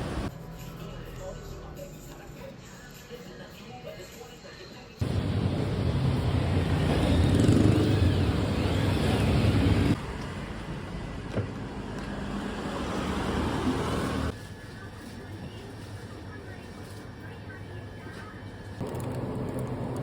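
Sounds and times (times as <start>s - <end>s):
road vehicle rumble: 0.0s - 0.3s, 5.0s - 14.4s, 18.8s - 20.0s.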